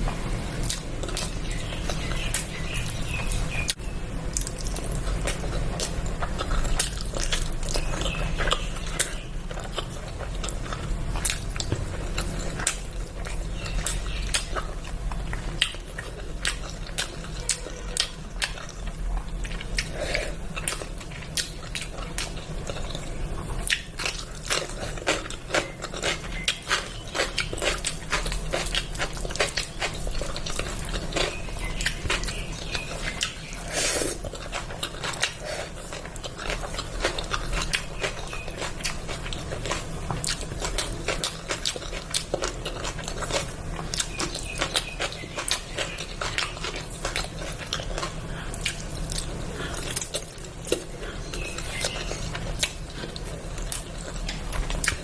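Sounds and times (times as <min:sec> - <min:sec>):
low steady hum: 0:00.0 - 0:55.0
person chewing: 0:00.6 - 0:55.0.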